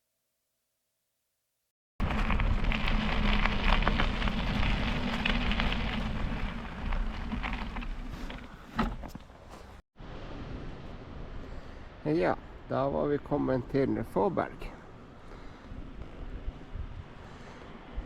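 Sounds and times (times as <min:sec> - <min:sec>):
bicycle tyres on wet gritty road: 0:02.0 - 0:09.8, 0:14.8 - 0:18.0.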